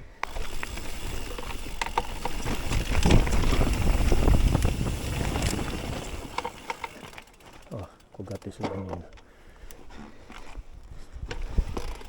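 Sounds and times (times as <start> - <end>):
tyres rumbling over dirt: 0.0 - 8.9
bike clicks and rattles: 0.0 - 12.0
wind buffeting microphone: 0.2 - 6.7, 10.6 - 12.0.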